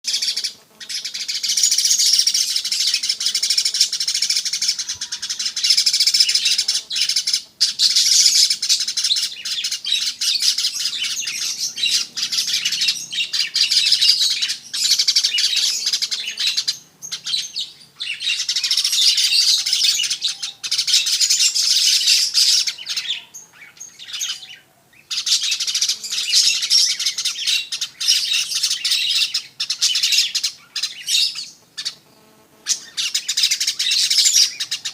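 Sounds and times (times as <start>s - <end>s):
bird singing high chattering song: 0.0s - 34.9s.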